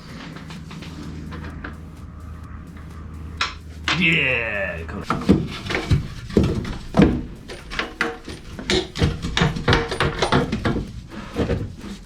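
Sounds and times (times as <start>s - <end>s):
metal car parts knocking and clanking: 5.0s - 12.0s.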